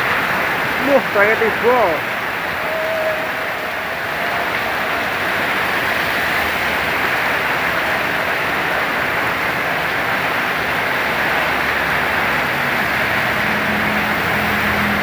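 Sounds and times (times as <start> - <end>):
heavy rain in strong wind: 0.0 - 15.0.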